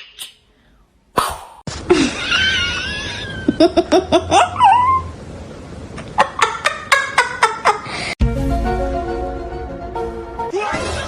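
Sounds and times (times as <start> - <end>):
music: 8.2 - 11.0.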